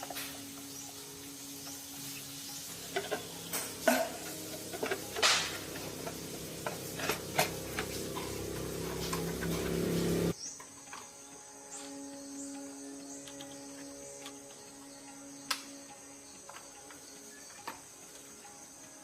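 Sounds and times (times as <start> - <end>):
metal tools clinking and scraping: 2.5 - 10.3
steady low hum: 2.7 - 10.4.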